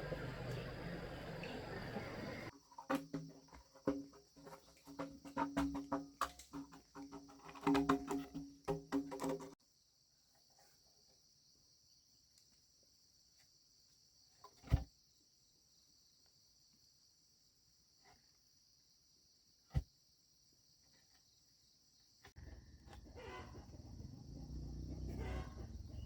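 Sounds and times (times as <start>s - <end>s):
insects chirring: 0.0s - 2.9s, 20.3s - 26.0s.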